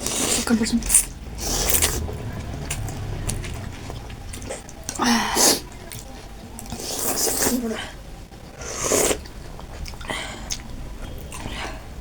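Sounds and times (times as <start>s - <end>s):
chewing with wet clicks: 5.6s - 7.5s, 8.9s - 11.9s.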